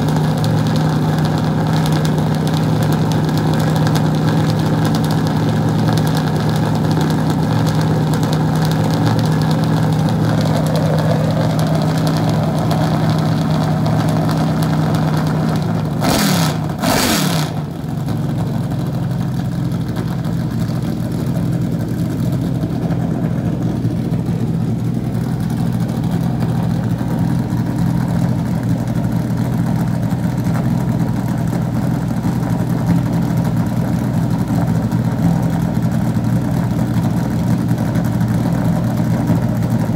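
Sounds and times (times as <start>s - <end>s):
stock car engine idling: 0.0s - 39.9s
engine revving bursts: 16.0s - 17.6s.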